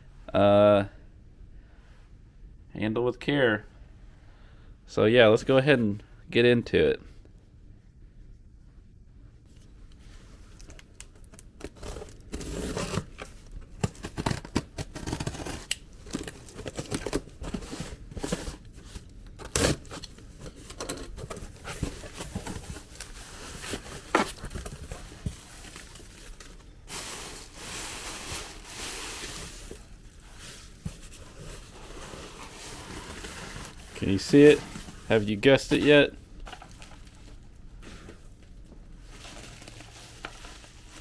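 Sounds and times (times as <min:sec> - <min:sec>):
packing material rustling: 0:10.5 - 0:38.3, 0:39.0 - 0:41.0
tape and wrapping tearing: 0:11.7 - 0:17.3, 0:19.4 - 0:20.2.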